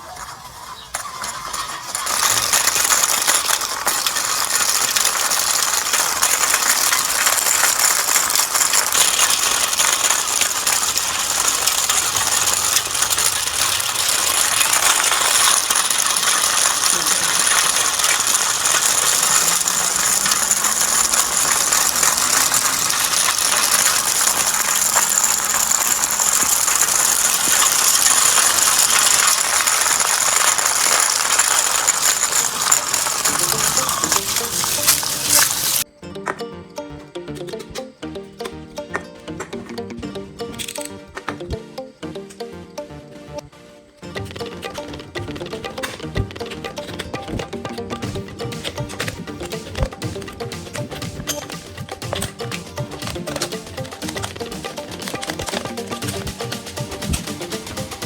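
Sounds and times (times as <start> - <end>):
small motor whining: 0.0 - 35.9
light metal rattling: 0.2 - 35.9.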